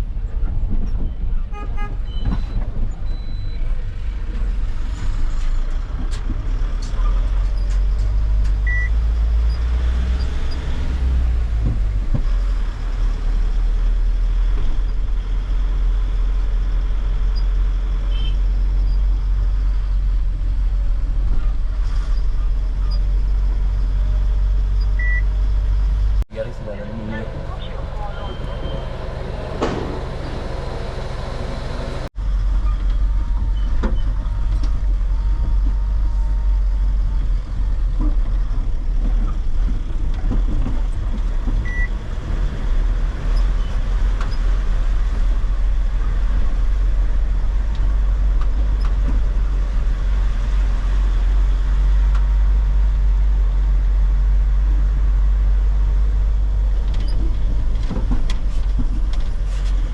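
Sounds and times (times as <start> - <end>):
truck engine and road rumble: 0.0 - 59.9.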